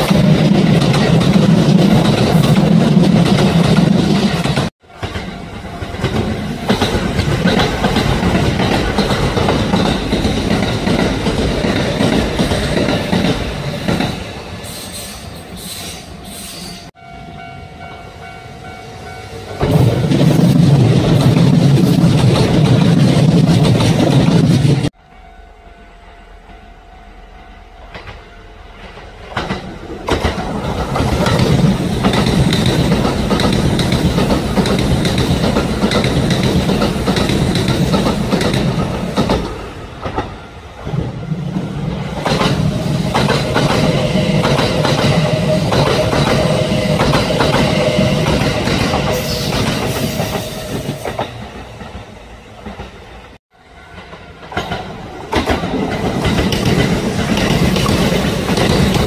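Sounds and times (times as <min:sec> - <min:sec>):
train wheels clacking: 0:00.0 - 0:16.6, 0:27.8 - 0:40.4, 0:41.3 - 0:53.1, 0:53.9 - 0:59.0.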